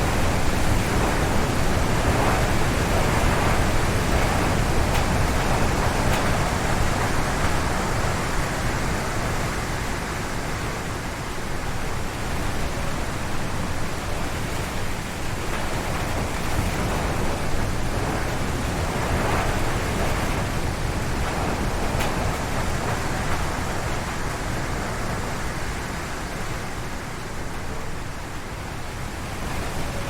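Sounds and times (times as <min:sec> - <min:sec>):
gusty wind howling through trees: 0:00.0 - 0:30.0.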